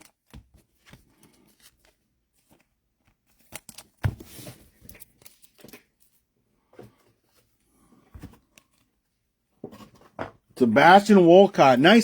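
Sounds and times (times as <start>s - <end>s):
trading cards clicking and rustling: 0.0s - 6.1s.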